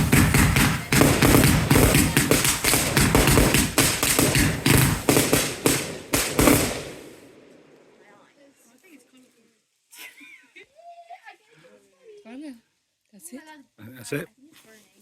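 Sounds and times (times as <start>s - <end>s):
fireworks banging: 0.0s - 8.3s.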